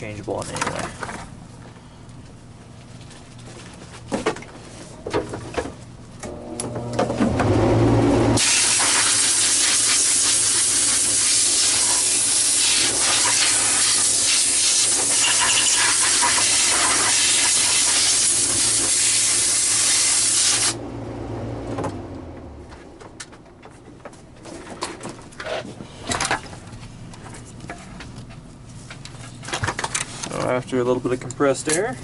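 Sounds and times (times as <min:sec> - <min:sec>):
low hum: 0:06.2 - 0:08.4, 0:20.6 - 0:23.6
compressed air hissing: 0:08.4 - 0:20.8.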